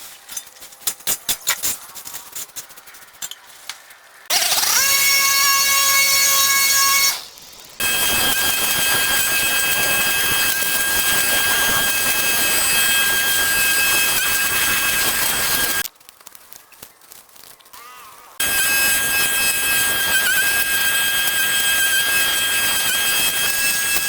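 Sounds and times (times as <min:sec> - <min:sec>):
power tool motor whining: 0:04.3 - 0:15.8, 0:17.8 - 0:24.0.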